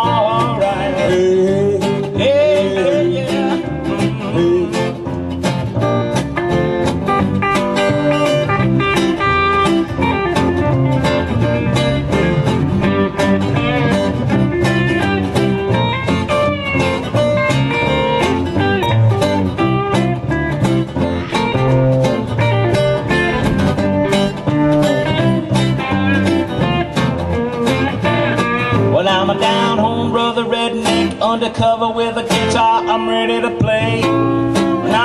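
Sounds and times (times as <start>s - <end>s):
bass guitar: 0.0s - 35.0s
guitar: 0.0s - 35.0s
drums with steady beat: 19.6s - 27.4s.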